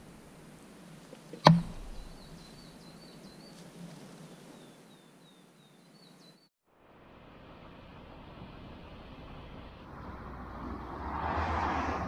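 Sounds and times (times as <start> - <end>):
outdoor background noise: 0.0 - 12.0
sharp knock: 1.4 - 2.2
bird chirping rapidly: 1.4 - 3.6.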